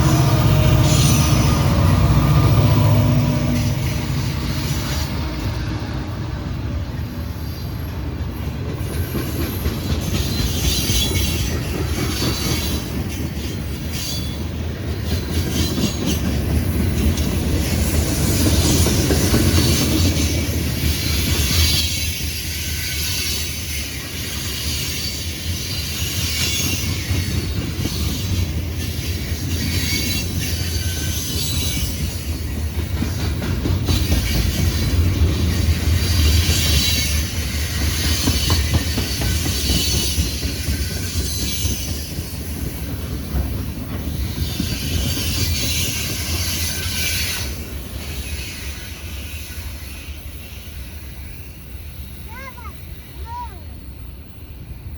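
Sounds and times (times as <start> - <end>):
railroad cars rumbling past: 0.0 - 54.9
wheels clacking over rail joints: 8.2 - 50.2.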